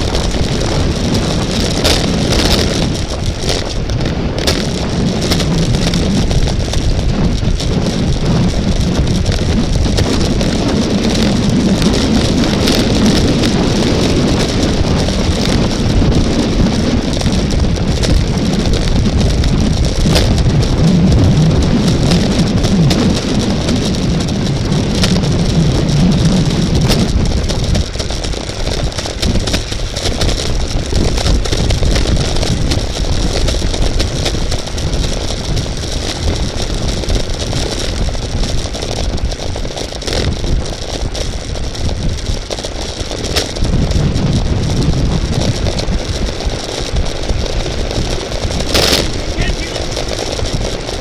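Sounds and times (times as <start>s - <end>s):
wind and road rumble: 0.0s - 51.0s.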